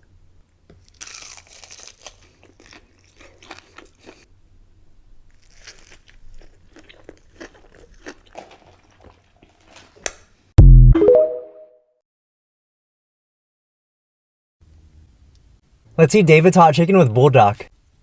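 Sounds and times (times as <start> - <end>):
person chewing crunchy food: 0.8 - 4.3, 5.3 - 10.0.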